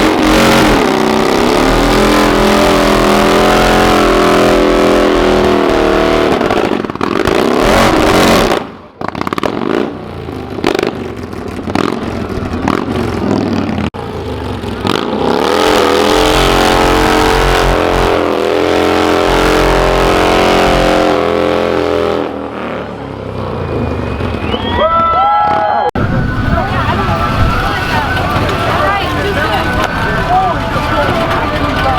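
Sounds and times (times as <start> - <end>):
car engine revving hard: 0.0 - 8.6, 12.7 - 22.9.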